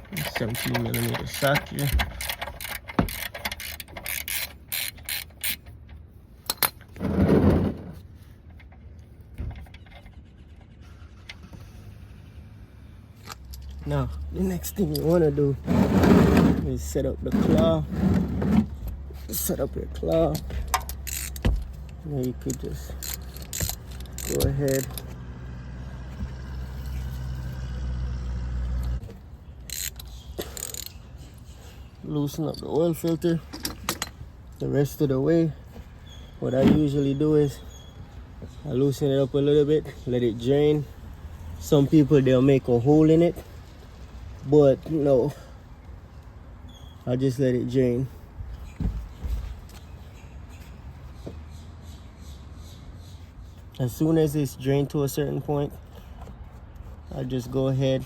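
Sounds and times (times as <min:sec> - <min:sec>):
ratchet clicking: 0:00.1 - 0:05.7, 0:20.3 - 0:25.2, 0:29.7 - 0:31.0
low engine hum: 0:16.3 - 0:29.7.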